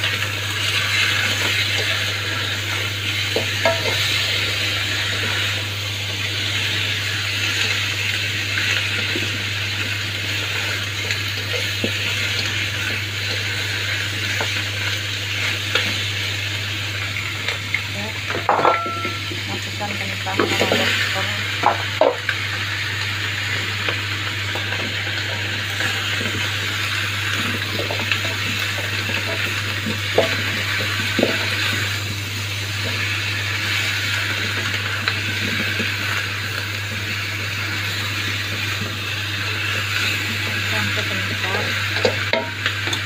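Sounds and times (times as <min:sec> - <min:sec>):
chicken frying in oil: 0:00.0 - 0:43.0
vegetables clattering into pan: 0:18.3 - 0:19.5, 0:41.6 - 0:43.0.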